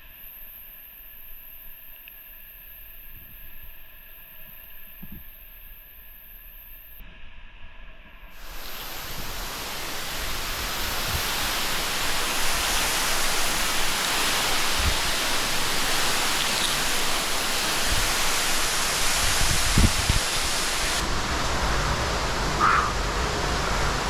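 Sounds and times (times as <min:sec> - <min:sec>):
waterfall roaring: 0:08.4 - 0:24.0.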